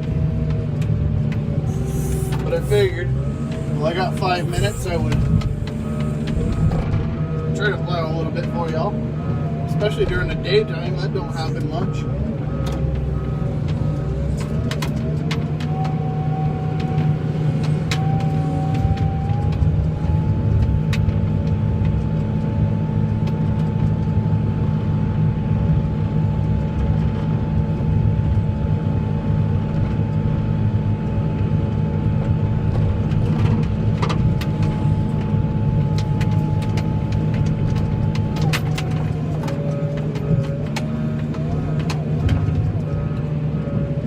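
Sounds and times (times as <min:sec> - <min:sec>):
truck engine rumbling: 0:00.0 - 0:44.0
high whine: 0:00.8 - 0:21.2.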